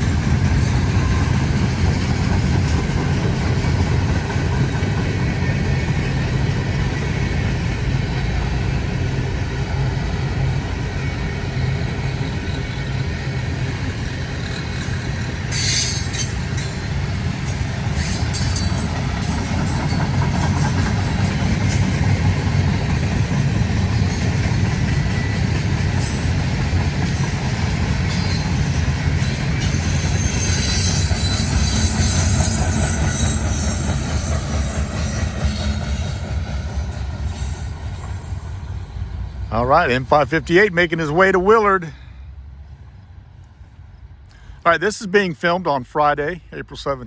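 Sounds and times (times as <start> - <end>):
freight train cars rumbling: 0.0 - 47.0
wheel squeal: 14.4 - 16.9, 28.0 - 36.3.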